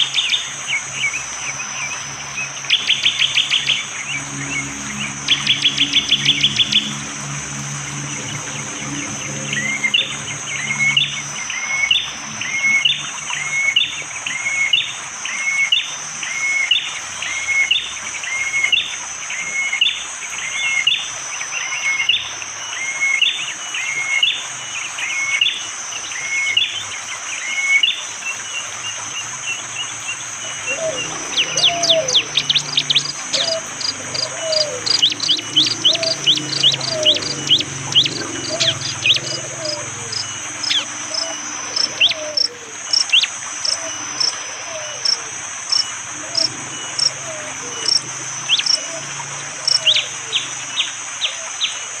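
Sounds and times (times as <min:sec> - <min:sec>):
forest background hiss: 0:00.0 - 0:52.0
lower whistled notes: 0:30.3 - 0:50.5.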